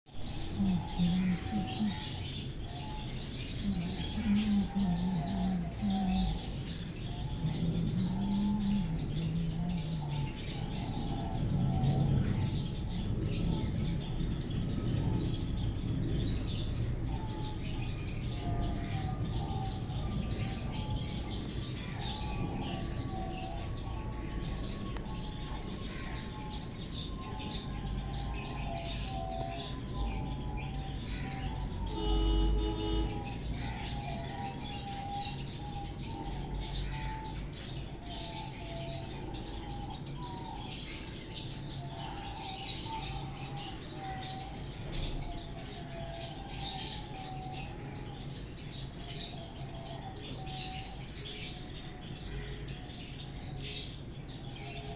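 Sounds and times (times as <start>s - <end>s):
birds chirping: 0.1s - 54.9s
low cooing: 0.4s - 2.3s, 3.6s - 12.7s.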